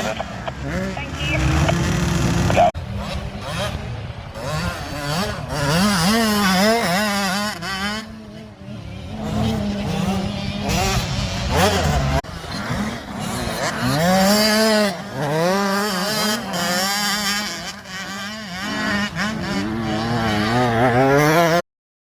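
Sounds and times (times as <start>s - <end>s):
dirt bike engine revving: 0.0s - 21.6s
engine droning: 0.0s - 21.6s.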